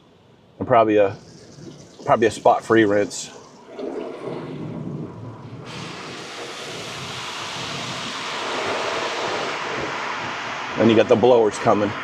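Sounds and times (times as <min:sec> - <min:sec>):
water spray hissing on car: 0:05.5 - 0:12.0.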